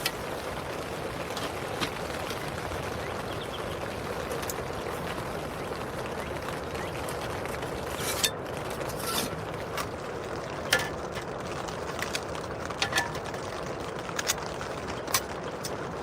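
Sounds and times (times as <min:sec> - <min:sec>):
rain on tent fabric: 0:00.0 - 0:16.0.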